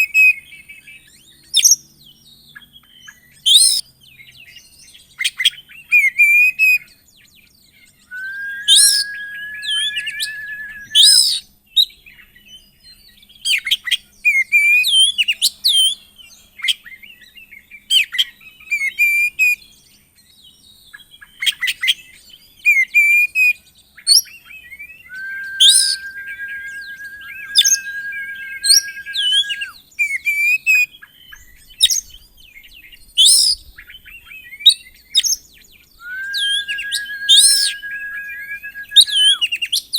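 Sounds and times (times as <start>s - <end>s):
songbird whistling and chirping: 0.0s - 3.8s, 7.9s - 13.3s, 24.0s - 30.5s, 31.2s - 39.9s.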